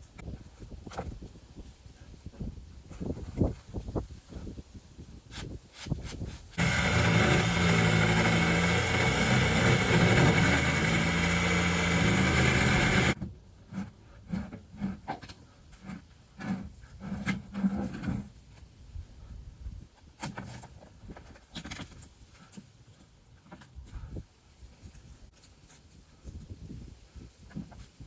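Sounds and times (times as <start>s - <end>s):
power saw cutting wood: 6.6s - 13.2s.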